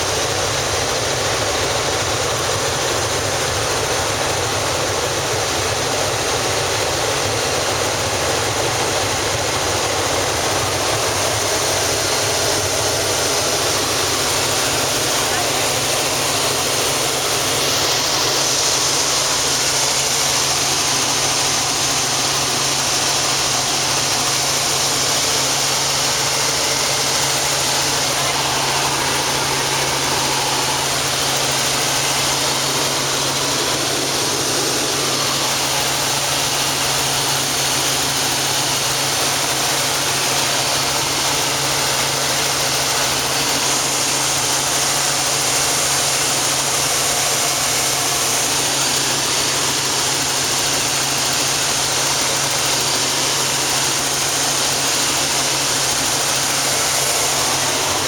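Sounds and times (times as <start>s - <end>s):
helicopter engine and rotor: 0.0s - 58.0s.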